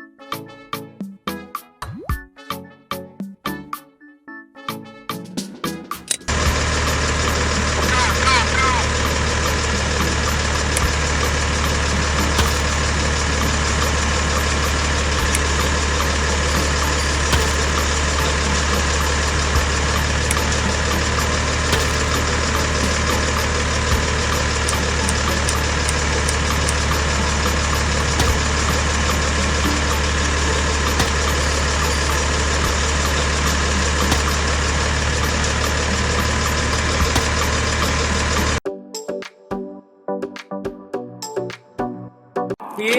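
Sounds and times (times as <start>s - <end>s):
engine idling: 6.3s - 38.6s
light regular ticking: 6.3s - 38.6s
small motor humming: 6.3s - 38.6s.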